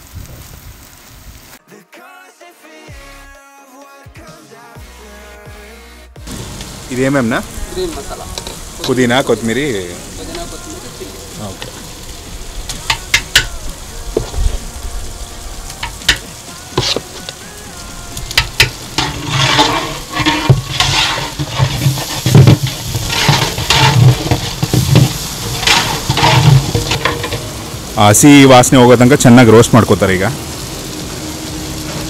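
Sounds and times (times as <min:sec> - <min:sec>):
paste sizzling in hot oil: 0:06.2 - 0:32.0
stirring in pot: 0:15.8 - 0:17.4, 0:18.2 - 0:27.7
metal ladle knocking pot: 0:18.4 - 0:27.6.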